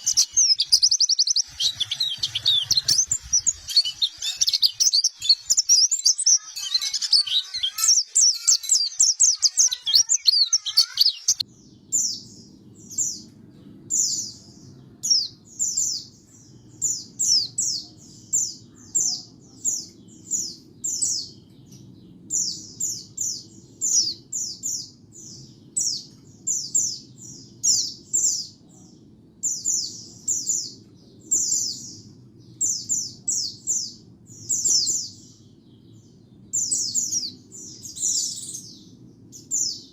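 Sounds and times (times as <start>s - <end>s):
steady low hum: 0.0s - 6.2s, 11.4s - 39.9s
bird warbling chatter: 0.0s - 11.4s.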